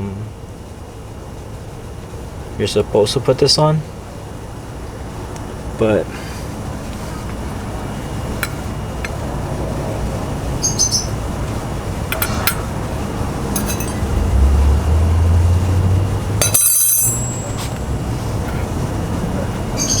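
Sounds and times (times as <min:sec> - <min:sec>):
metallic clicks and clinks: 0:13.5 - 0:14.2, 0:16.4 - 0:18.6.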